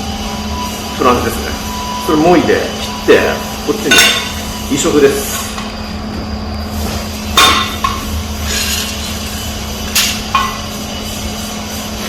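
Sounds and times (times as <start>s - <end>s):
steady workshop hum: 0.0s - 12.0s
strikes on steel parts: 3.9s - 4.4s, 7.3s - 8.9s, 9.9s - 10.8s.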